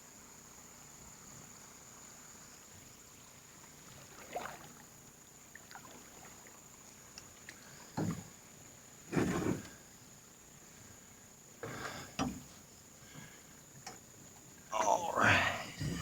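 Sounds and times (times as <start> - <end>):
canoe paddle splashing water: 3.8 - 8.2
faint ticks: 7.1 - 8.2, 11.9 - 14.7.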